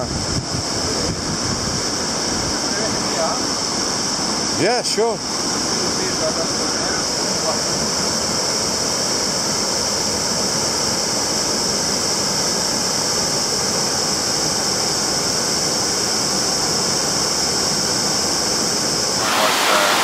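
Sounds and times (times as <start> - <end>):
waterfall rushing: 19.1 - 20.0.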